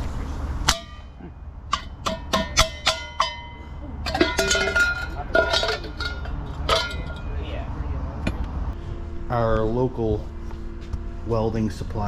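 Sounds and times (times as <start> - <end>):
ringing taps on metal: 0.7 - 7.4.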